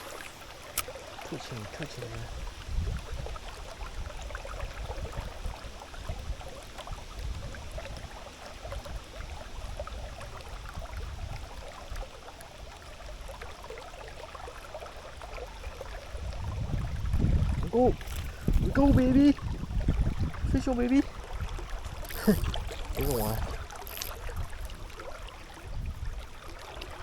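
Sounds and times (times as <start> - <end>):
river water flowing: 0.0 - 27.0
small crackles: 17.9 - 18.7, 21.8 - 24.9.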